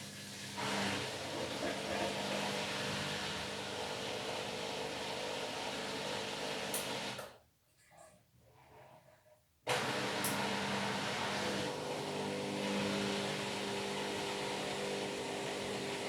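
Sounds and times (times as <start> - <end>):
washing machine rushing: 0.0 - 5.7, 9.7 - 16.0.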